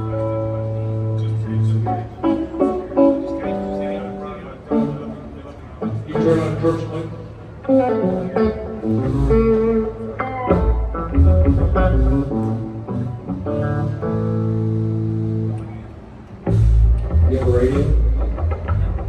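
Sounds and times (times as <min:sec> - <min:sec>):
guitar playing: 0:00.0 - 0:19.0
bass guitar playing: 0:05.8 - 0:19.0.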